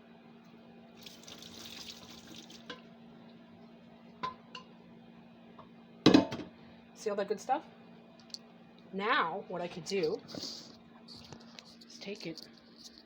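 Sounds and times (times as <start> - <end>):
liquid trickling through strainer: 1.0 - 2.7.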